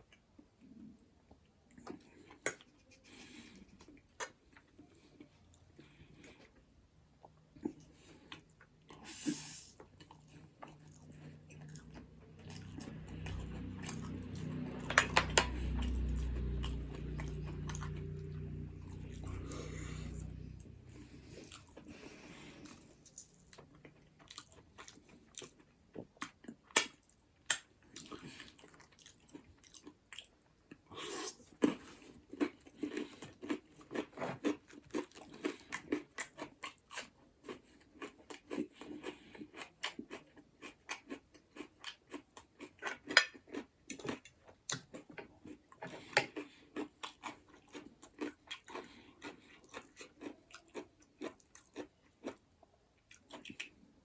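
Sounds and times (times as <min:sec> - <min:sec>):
chewing and crunching: 0:00.0 - 0:54.0
low rumbling sound: 0:12.3 - 0:21.4.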